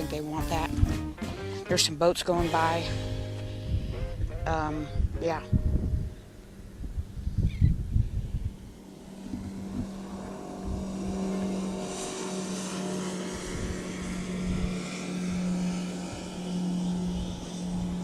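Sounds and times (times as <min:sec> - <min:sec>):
motorboat engines droning: 0:00.0 - 0:18.0.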